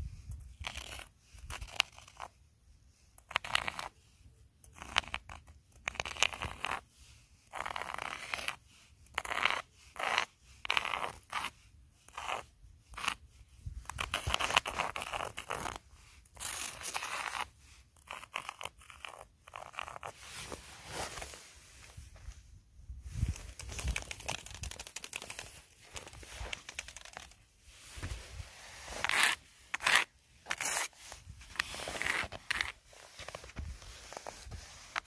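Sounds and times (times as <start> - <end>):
footsteps crunching in snow: 20.1 - 22.3.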